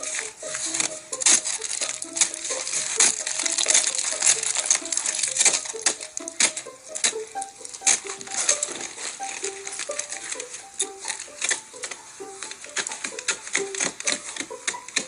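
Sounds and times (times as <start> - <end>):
freezing rain hissing: 0.0 - 15.0
ice clicking on hard surfaces: 0.0 - 15.0.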